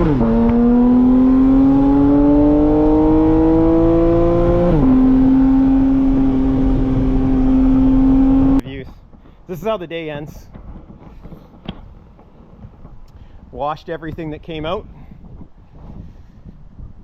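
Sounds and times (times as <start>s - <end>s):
car engine accelerating through gears: 0.0s - 8.6s.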